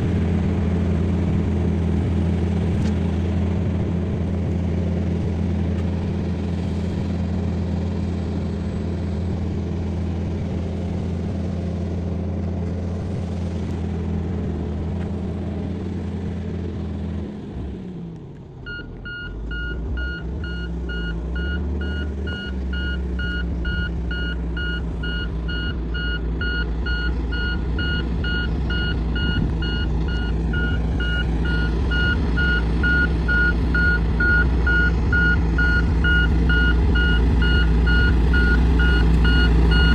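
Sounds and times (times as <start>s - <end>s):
bulldozer diesel engine running: 0.0s - 39.9s
reversing alarm beeping: 18.6s - 39.9s.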